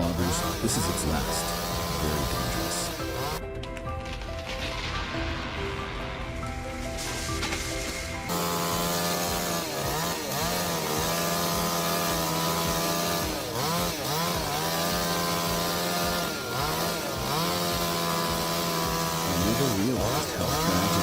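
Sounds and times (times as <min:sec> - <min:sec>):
chainsaw engine running: 0:00.0 - 0:03.4, 0:08.2 - 0:21.0.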